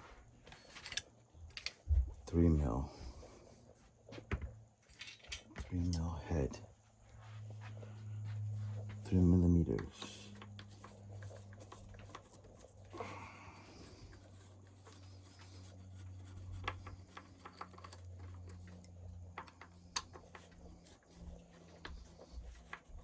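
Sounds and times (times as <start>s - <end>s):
steady low hum: 0.0s - 23.0s
clicks and scrapes of small parts: 0.4s - 1.8s, 4.8s - 6.0s, 9.7s - 23.0s.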